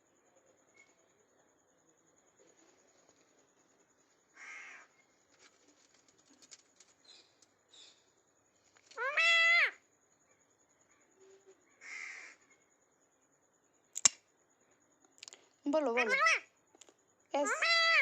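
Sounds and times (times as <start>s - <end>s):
parrot screeching: 9.0s - 9.8s, 15.8s - 16.5s, 17.4s - 18.0s.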